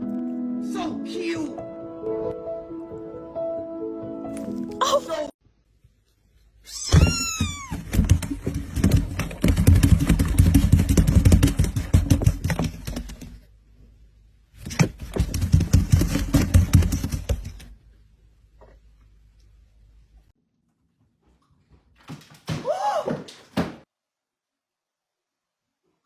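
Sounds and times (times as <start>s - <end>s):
cat meowing: 6.7s - 7.8s
rapid clicking and rustling: 7.8s - 13.5s, 14.6s - 17.7s.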